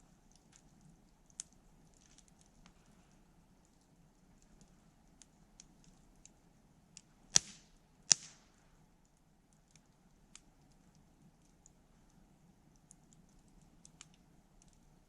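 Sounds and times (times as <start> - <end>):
wood fire crackling: 0.0 - 15.0
loud sharp fire pops: 7.3 - 8.6.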